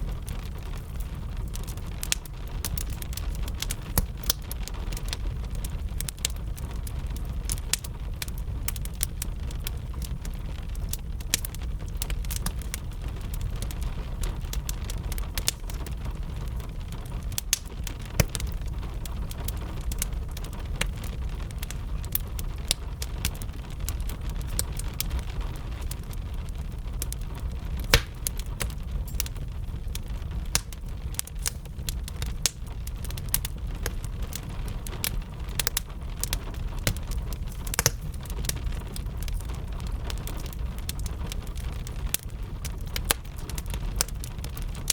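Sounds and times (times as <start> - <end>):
gentle rain: 0.0 - 44.9
wood fire crackling and popping: 0.0 - 44.9.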